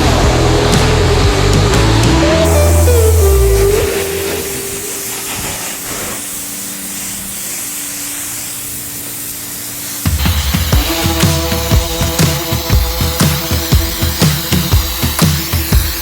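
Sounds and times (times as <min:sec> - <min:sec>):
music with heavy beat: 0:00.0 - 0:05.3, 0:10.0 - 0:16.0
pressure washer spraying water: 0:00.0 - 0:16.0.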